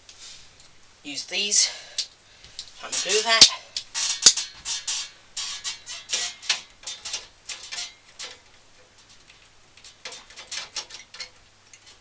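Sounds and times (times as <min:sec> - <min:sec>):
hand tool clicking and scraping: 0:02.9 - 0:09.0, 0:09.8 - 0:12.0.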